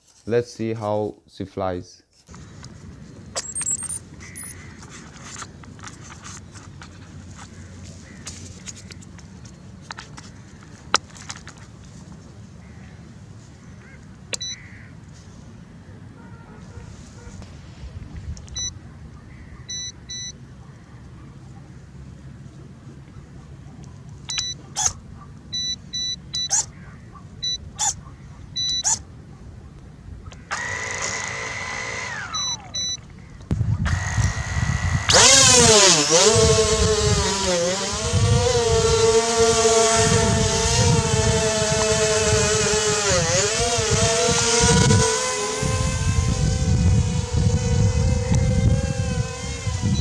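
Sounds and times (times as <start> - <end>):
propeller motor whine: 2.3 - 14.5, 30.3 - 50.0
short electronic beeps and clicks: 3.4 - 4.6, 14.3 - 14.6, 18.5 - 18.8, 19.6 - 20.4, 24.3 - 24.9, 25.5 - 26.7, 27.4 - 28.0, 28.6 - 29.0, 32.2 - 33.1.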